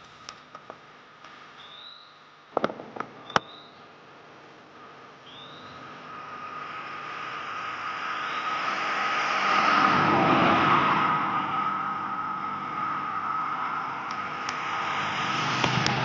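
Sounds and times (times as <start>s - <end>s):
road vehicle passing by: 5.5s - 16.0s.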